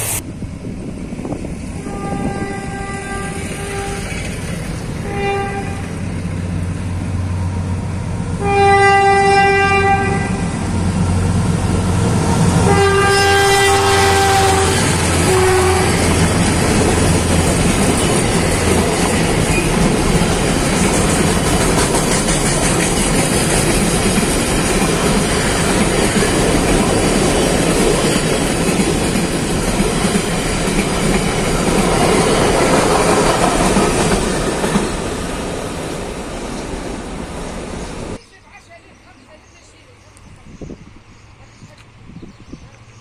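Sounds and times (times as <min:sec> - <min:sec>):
locomotive engine drone: 0:00.0 - 0:43.0
locomotive horn: 0:01.8 - 0:04.2, 0:05.0 - 0:06.0, 0:08.4 - 0:10.7, 0:12.6 - 0:16.6
train wheels rushing and clattering: 0:03.4 - 0:05.1, 0:13.9 - 0:38.2.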